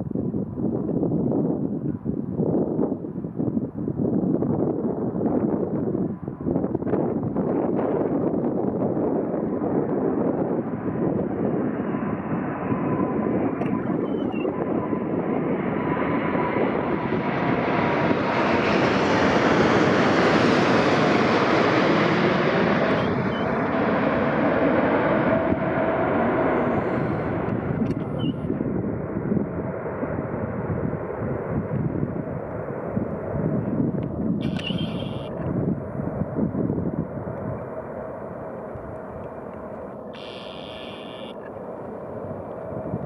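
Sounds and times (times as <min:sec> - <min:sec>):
jet engines roaring: 0:05.8 - 0:43.0
thin engine whine: 0:19.2 - 0:28.6, 0:34.4 - 0:35.8, 0:40.2 - 0:41.5.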